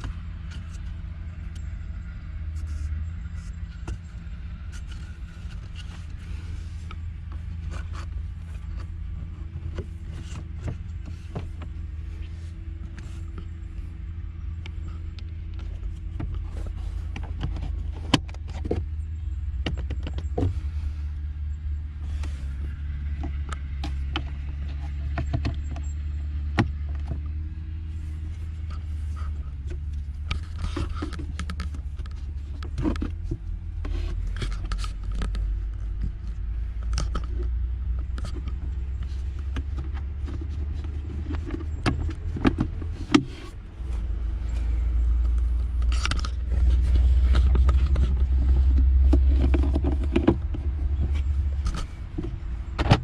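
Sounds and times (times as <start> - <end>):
low car hum: 0.0 - 53.0
plastic clicks and knocks: 19.6 - 20.6.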